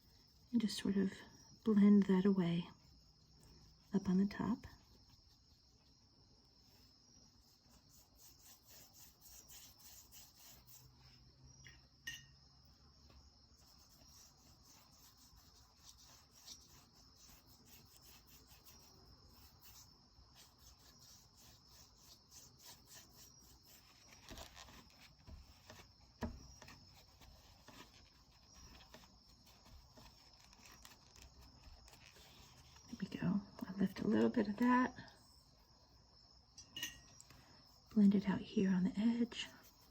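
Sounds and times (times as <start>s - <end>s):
brush rubbing on paper: 2.8s - 6.0s, 6.6s - 11.2s, 13.6s - 33.1s, 39.3s - 39.9s.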